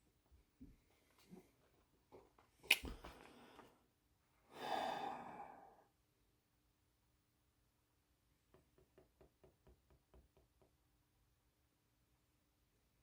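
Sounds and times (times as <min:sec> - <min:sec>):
sharp click: 0:02.7 - 0:03.0
person sighing heavily: 0:04.5 - 0:05.9.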